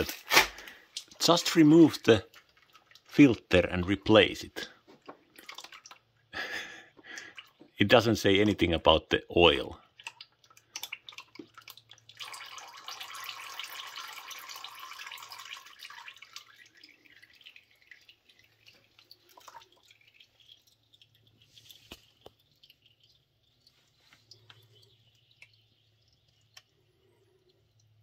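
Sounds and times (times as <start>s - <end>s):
oil dripping: 0.0s - 28.0s
oil pouring and splashing: 0.0s - 28.0s.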